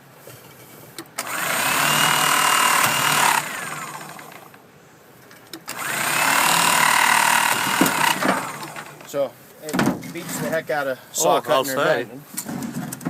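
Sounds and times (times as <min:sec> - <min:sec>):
stone trimmer cutting rock: 0:01.2 - 0:04.5, 0:05.7 - 0:09.1.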